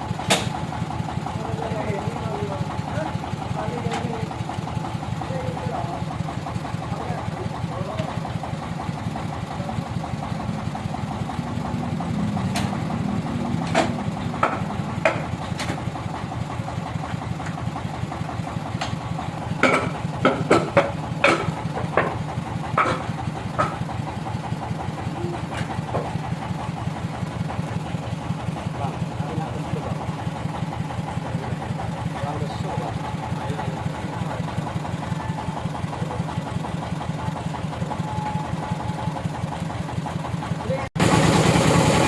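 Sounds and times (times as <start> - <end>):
engine idling: 0.0 - 42.0
sharp knocks: 13.6 - 15.8, 19.6 - 23.9.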